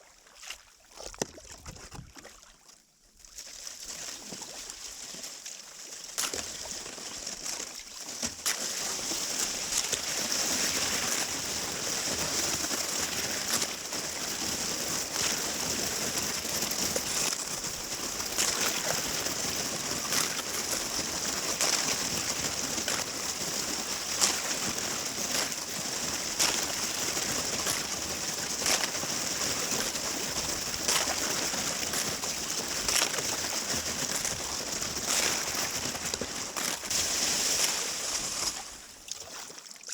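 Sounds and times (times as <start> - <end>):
paddle splashing into water: 0.1 - 39.9
hiss of moving water: 35.0 - 39.4.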